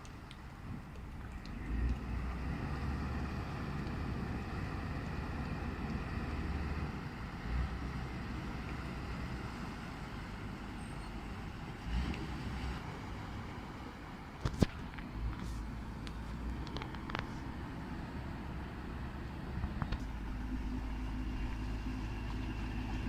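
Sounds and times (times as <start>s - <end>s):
boat engine rumbling: 0.0s - 23.0s.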